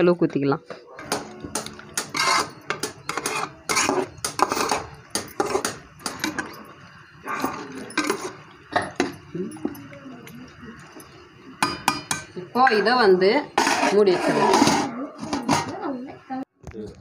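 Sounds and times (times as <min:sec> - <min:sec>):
metal spoon scraping a pot: 0:01.0 - 0:09.7, 0:11.0 - 0:15.8.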